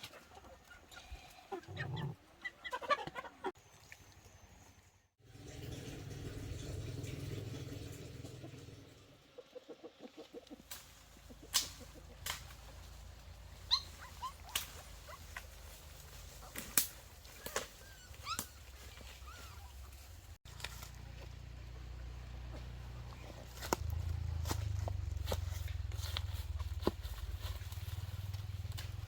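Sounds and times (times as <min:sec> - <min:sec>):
low pulses: 0:05.3 - 0:09.2
low rumbling noise: 0:05.3 - 0:09.2
small animal squeaks: 0:13.7 - 0:15.3, 0:17.4 - 0:19.8.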